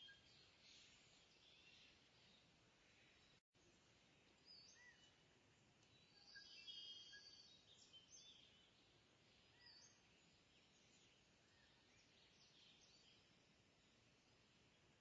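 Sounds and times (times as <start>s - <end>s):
faint birdsong chirps: 0.0s - 15.0s
low steady hiss: 0.0s - 15.0s.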